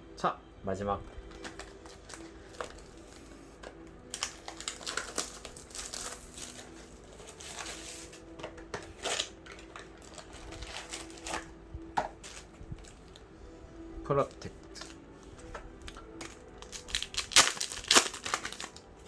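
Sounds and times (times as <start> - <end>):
foil wrapper crinkling: 1.2 - 13.3, 14.2 - 19.0.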